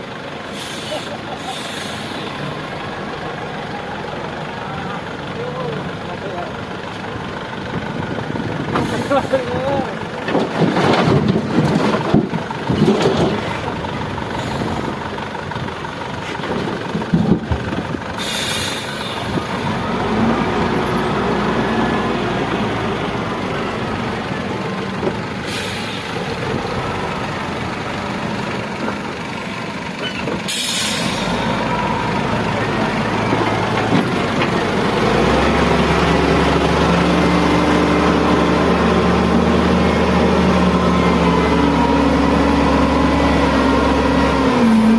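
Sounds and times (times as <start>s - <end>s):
diesel truck engine running: 0.0s - 44.9s
air brake hisses: 0.5s - 2.4s, 18.2s - 19.3s, 25.4s - 26.2s, 30.5s - 31.4s.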